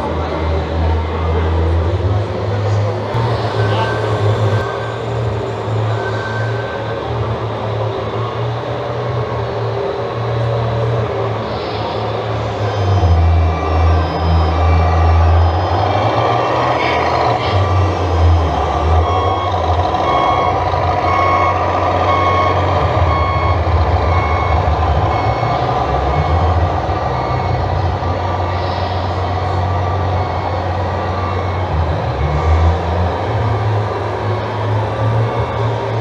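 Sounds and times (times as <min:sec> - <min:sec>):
low engine rumble: 0:00.0 - 0:36.0
reversing beeper short beeps: 0:03.2 - 0:08.3, 0:11.8 - 0:32.7.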